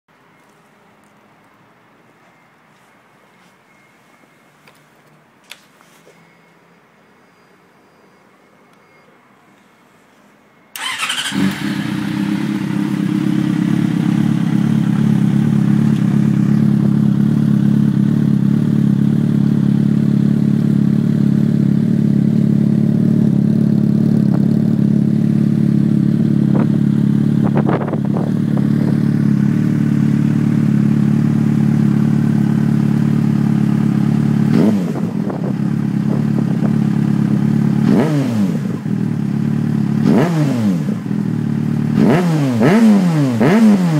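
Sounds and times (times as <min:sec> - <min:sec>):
motorcycle engine starting and idling: 0:10.7 - 0:43.9
motorcycle engine revving: 0:10.8 - 0:43.9.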